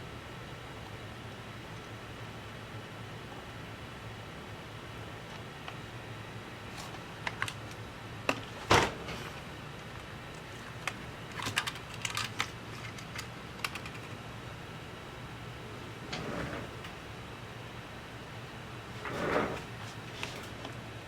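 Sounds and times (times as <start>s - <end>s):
steady low hum: 0.0s - 21.0s
small tools clicking and tapping: 10.3s - 14.2s.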